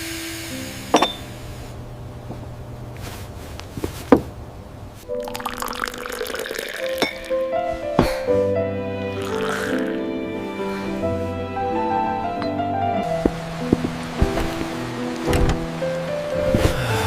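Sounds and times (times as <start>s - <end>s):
soft music: 5.0s - 17.0s
liquid pouring: 5.1s - 7.5s, 9.2s - 10.0s.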